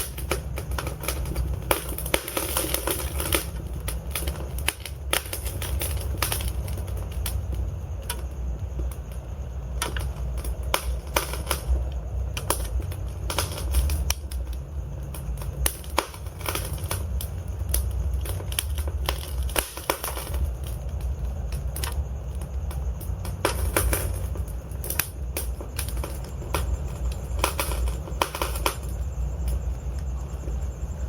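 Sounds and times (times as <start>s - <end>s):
logs crackling and popping: 0.0s - 30.6s
low rumble of flames: 0.0s - 31.0s.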